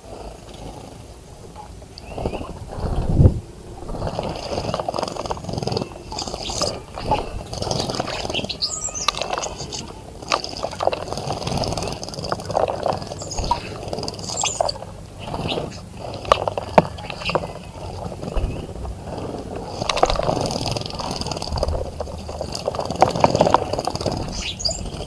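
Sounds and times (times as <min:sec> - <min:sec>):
bird chirps: 0:01.9 - 0:03.1, 0:04.0 - 0:12.0, 0:12.8 - 0:18.8, 0:23.4 - 0:25.0.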